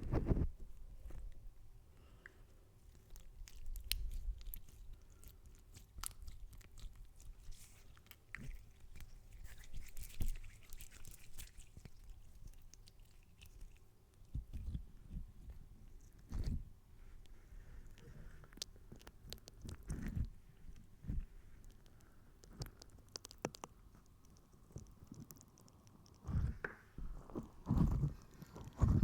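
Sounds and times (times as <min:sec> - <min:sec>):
small sharp crackles and clicks: 0:17.2 - 0:29.0
soft low thumps: 0:26.2 - 0:29.0.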